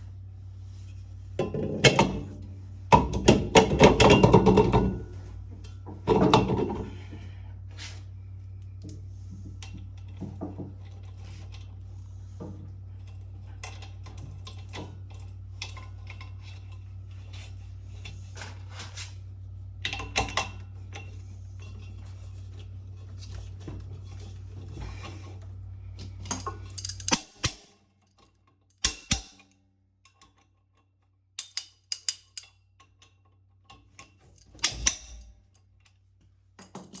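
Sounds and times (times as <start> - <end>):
low steady hum: 0.0 - 37.0
metallic clicks and clinks: 26.2 - 36.0.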